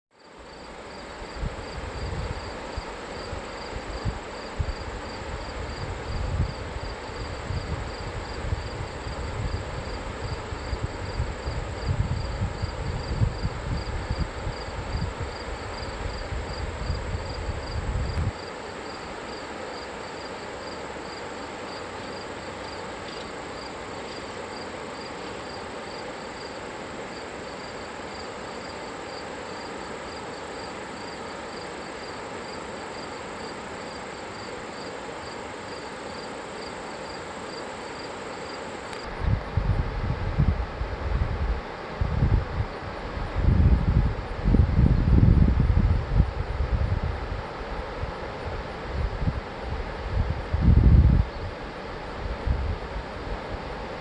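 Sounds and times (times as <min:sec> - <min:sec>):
insect chirping: 0:00.2 - 0:39.1
gusty low rumble: 0:39.1 - 0:47.3.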